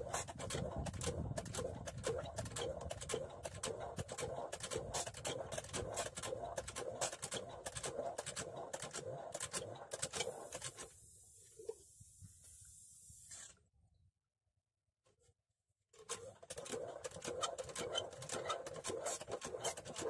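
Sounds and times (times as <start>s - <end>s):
diesel water pump engine knocking: 0.0s - 9.8s.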